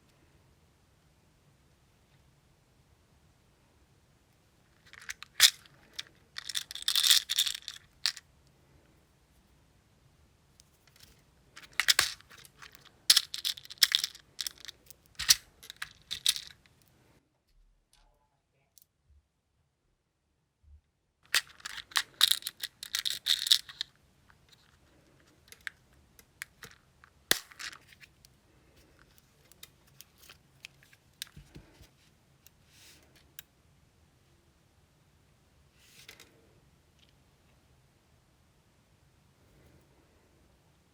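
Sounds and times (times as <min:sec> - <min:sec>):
small tools clicking and scratching: 0:04.8 - 0:08.2, 0:10.6 - 0:16.7, 0:21.3 - 0:23.9.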